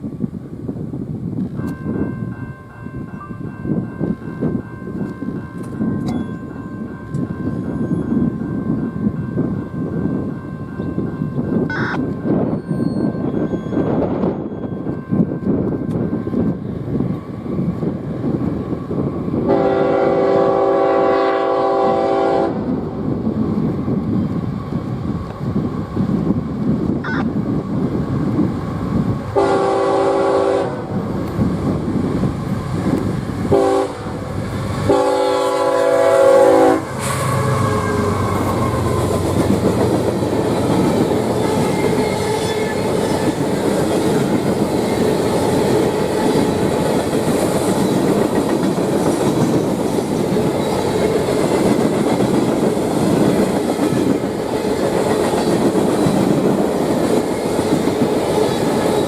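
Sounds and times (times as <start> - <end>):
train wheels rumbling on rail: 0.0 - 59.0
locomotive horn blasts: 11.7 - 12.0, 19.5 - 22.6, 29.4 - 30.9, 33.5 - 34.2, 34.9 - 38.5.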